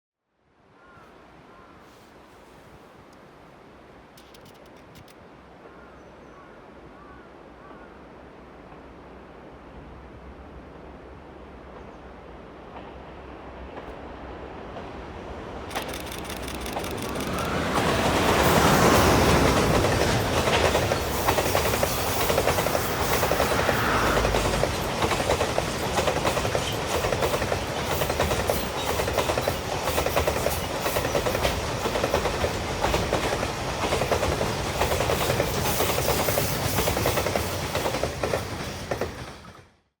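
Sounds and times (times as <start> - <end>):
electric locomotive passing: 7.7 - 39.8
train wheels clattering over rail joints: 15.7 - 39.8.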